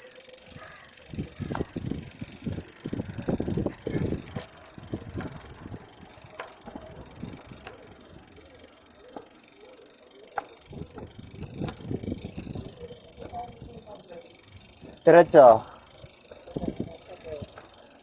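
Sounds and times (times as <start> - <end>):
bike clicks and rattles: 0.0 - 18.0
wind buffeting microphone: 1.1 - 7.7, 10.7 - 13.9, 15.9 - 17.6.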